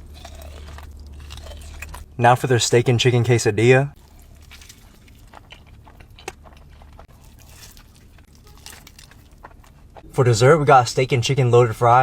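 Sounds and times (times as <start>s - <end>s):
person chewing food: 0.0s - 2.1s, 4.0s - 10.1s
steady low hum: 0.0s - 12.0s.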